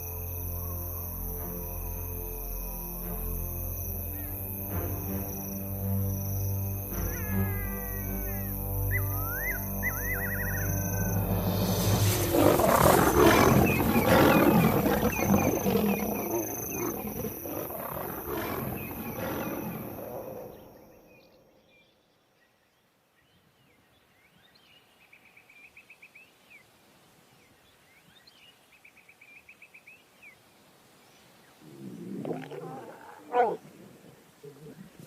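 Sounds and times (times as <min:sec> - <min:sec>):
faint chirping trills: 0:03.6 - 0:26.7
lions roaring and fighting: 0:11.3 - 0:20.7, 0:31.6 - 0:35.0.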